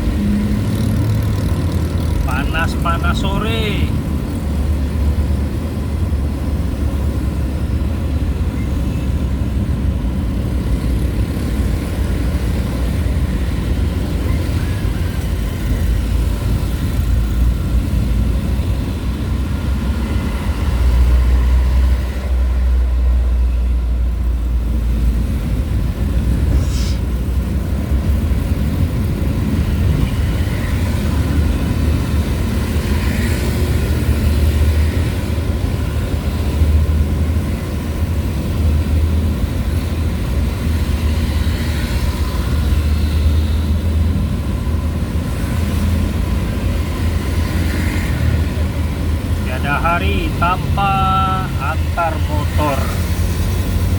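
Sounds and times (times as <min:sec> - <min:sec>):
engine and road noise: 0:00.0 - 0:53.9
vehicle rumbling: 0:00.0 - 0:53.9.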